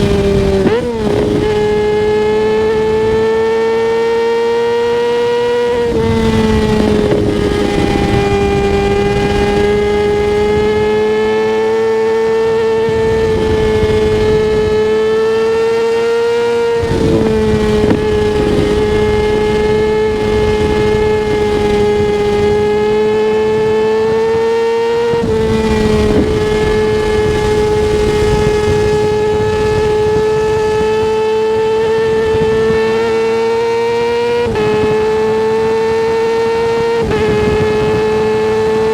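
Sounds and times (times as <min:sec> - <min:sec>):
motorcycle engine at high revs: 0:00.0 - 0:38.9
wind rushing: 0:05.7 - 0:15.5, 0:16.8 - 0:24.5, 0:25.1 - 0:33.0.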